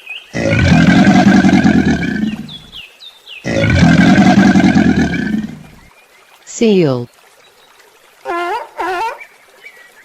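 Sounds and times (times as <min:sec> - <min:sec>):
crocodile bellowing: 0:00.4 - 0:02.8, 0:03.5 - 0:05.8.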